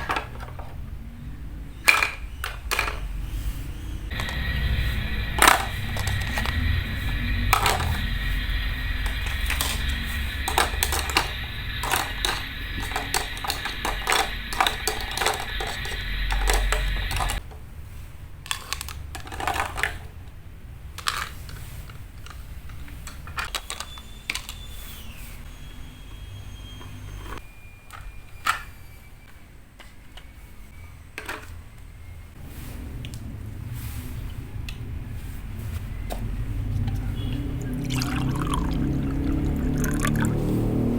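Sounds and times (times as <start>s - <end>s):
utensils clinking on cookware: 1.8s - 3.4s, 4.1s - 17.4s
steady hum: 3.1s - 17.4s.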